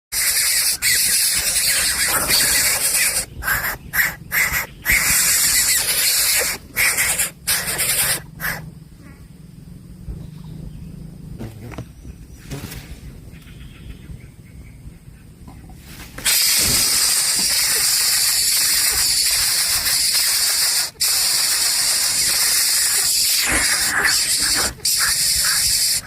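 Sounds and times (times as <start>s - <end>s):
bird nestling hissing: 0.1s - 8.6s, 15.9s - 26.0s.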